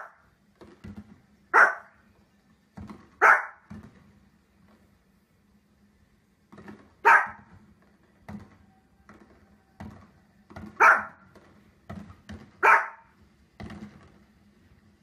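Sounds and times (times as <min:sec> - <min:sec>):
small dog barking: 0:00.0 - 0:00.2, 0:01.5 - 0:02.0, 0:03.2 - 0:03.7, 0:07.0 - 0:07.5, 0:10.7 - 0:11.2, 0:12.6 - 0:13.1.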